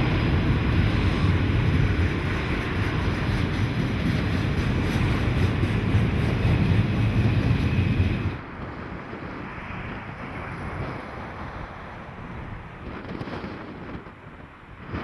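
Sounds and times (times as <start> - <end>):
train passing rumble: 0.0 - 15.0
wind noise on microphone: 0.0 - 15.0.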